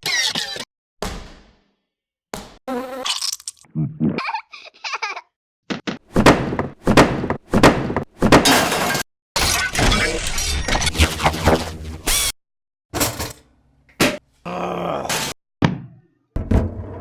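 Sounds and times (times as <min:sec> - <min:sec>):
thuds: 0:05.7 - 0:08.6.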